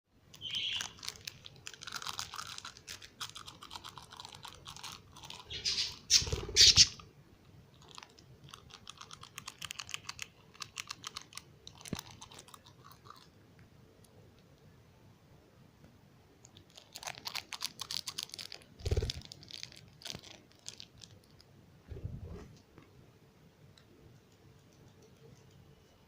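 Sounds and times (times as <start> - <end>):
dry clicks and crunching: 0.3 - 5.5, 7.7 - 13.4, 16.4 - 21.5.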